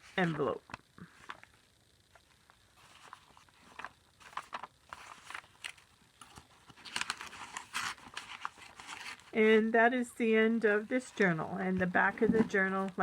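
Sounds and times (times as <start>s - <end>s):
paper rustling and crinkling: 2.2s - 9.4s.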